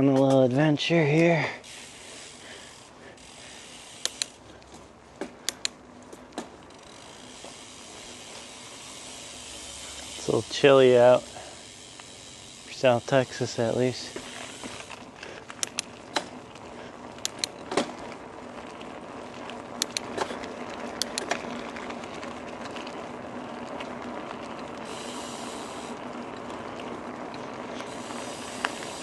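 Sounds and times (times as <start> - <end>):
bike clicks and rattles: 0.0 - 29.0
bike tyres rolling hiss: 0.7 - 29.0.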